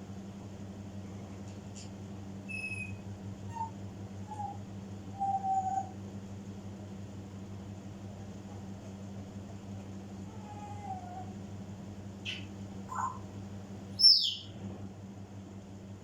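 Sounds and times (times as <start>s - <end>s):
parrot hooting whistles: 2.5s - 6.0s, 12.3s - 13.2s, 14.0s - 14.5s.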